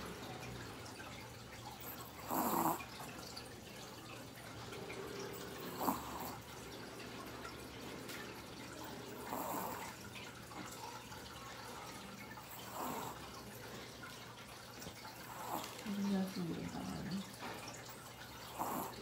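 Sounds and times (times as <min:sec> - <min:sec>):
dog snoring faintly: 0:01.8 - 0:03.3, 0:04.9 - 0:06.8, 0:08.6 - 0:11.0, 0:11.6 - 0:13.8, 0:15.2 - 0:17.8, 0:18.4 - 0:19.0.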